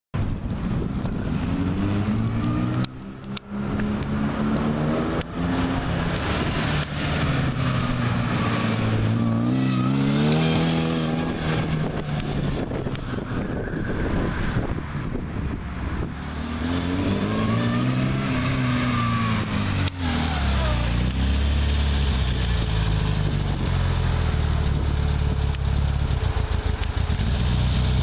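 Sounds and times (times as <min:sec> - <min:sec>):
race car engine revving: 0:01.2 - 0:15.2, 0:15.8 - 0:23.3.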